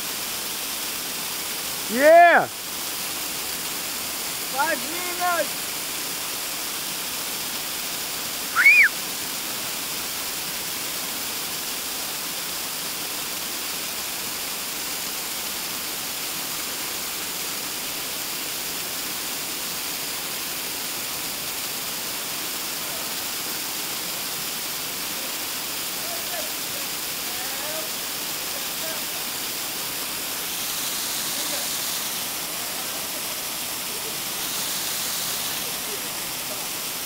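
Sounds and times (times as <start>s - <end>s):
waterfall rushing: 0.0s - 37.0s
short high-pitched call: 8.6s - 9.0s.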